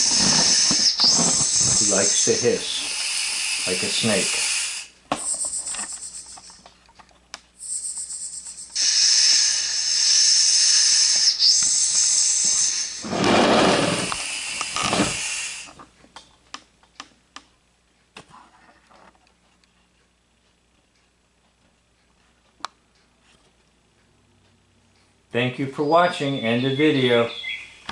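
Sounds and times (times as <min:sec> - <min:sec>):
loud hissing: 0:00.0 - 0:05.0, 0:07.6 - 0:15.8.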